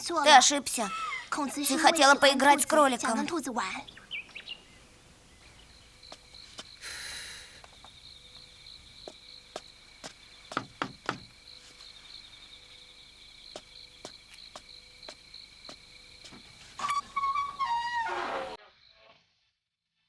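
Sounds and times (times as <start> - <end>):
crickets chirping: 0.0 - 19.2
sharp knocks: 10.5 - 11.3.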